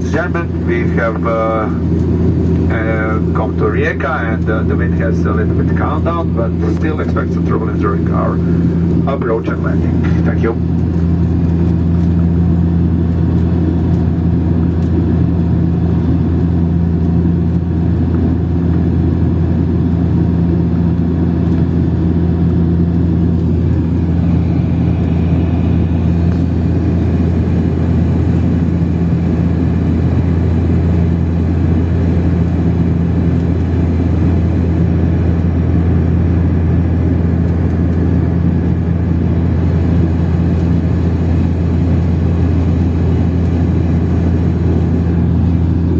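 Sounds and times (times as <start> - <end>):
airflow noise: 0.0 - 11.8, 22.6 - 29.4
airliner engine drone in cabin: 0.0 - 45.9
faint high whine: 23.5 - 28.1.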